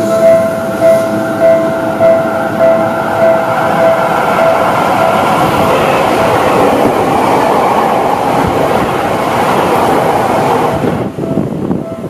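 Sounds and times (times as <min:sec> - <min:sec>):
train wheels rushing on rails: 0:00.0 - 0:12.0.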